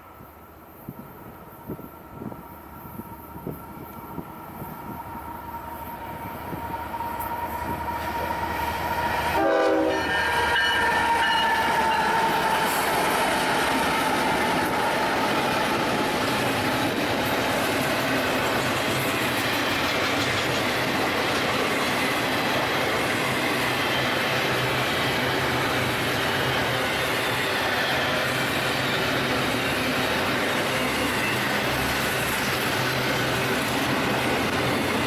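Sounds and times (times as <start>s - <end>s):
train rumbling past: 0.0s - 35.0s
train horn blast: 6.6s - 12.8s
wheels clattering on rail joints: 10.0s - 35.0s.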